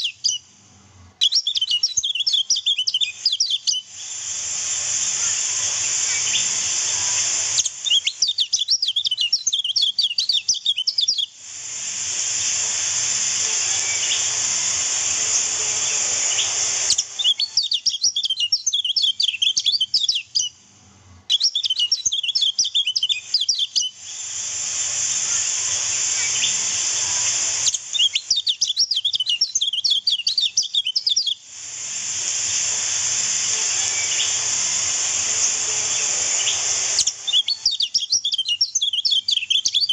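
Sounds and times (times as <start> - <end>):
bird chirping in rapid bursts: 0.0 - 0.5, 1.2 - 4.2, 5.6 - 11.4, 13.6 - 14.4, 15.4 - 20.6, 21.3 - 24.2, 25.8 - 31.4, 33.7 - 34.7, 35.4 - 39.9
rushing water hiss: 3.2 - 8.4, 9.4 - 17.7, 23.3 - 30.1, 30.7 - 39.4.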